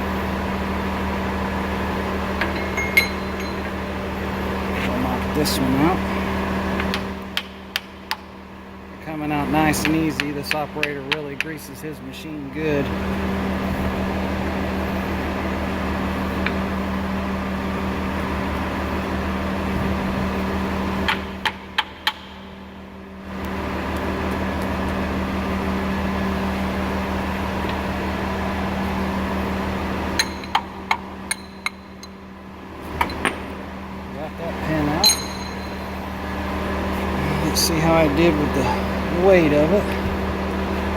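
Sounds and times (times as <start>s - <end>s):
mechanical hum: 0.0s - 40.9s
hammer tapping metal punch: 2.4s - 3.8s, 35.0s - 36.0s.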